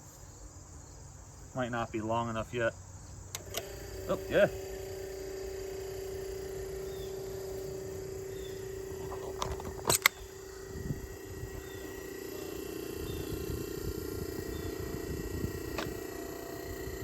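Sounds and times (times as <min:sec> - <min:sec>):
compressor humming: 0:01.6 - 0:17.0
sharp clicks or knocks: 0:09.1 - 0:10.3, 0:15.7 - 0:16.0.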